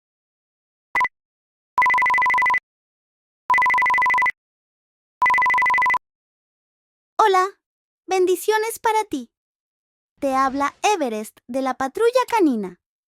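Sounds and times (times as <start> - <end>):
telephone ringing tone beeps: 1.8 - 2.6, 3.5 - 4.4, 5.2 - 6.0.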